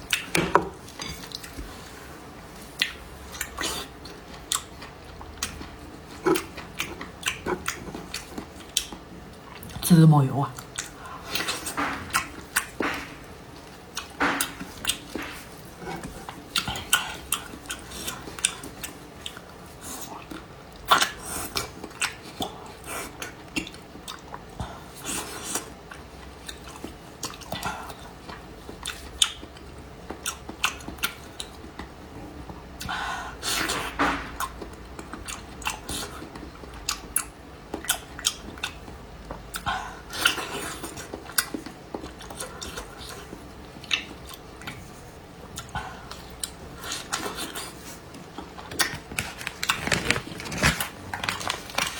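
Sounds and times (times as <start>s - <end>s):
chewing and mouth clicks: 2.8s - 9.8s, 10.5s - 13.3s, 13.9s - 32.0s, 34.4s - 44.9s.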